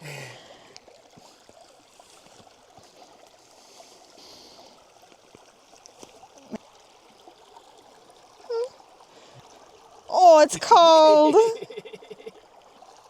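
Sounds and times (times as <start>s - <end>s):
river running over stones: 0.0s - 13.0s
voiced exclamation: 10.1s - 11.6s.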